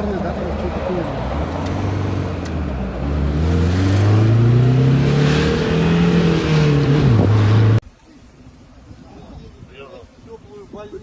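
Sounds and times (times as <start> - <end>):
vehicle engine accelerating: 0.6 - 7.8.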